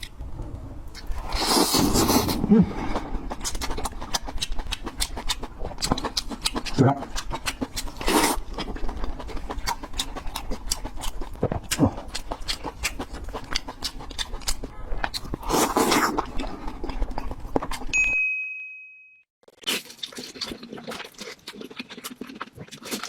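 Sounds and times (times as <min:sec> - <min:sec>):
wet chewing and mouth clicks: 0:00.9 - 0:18.0, 0:19.5 - 0:23.0
brief high tone: 0:18.0 - 0:19.2.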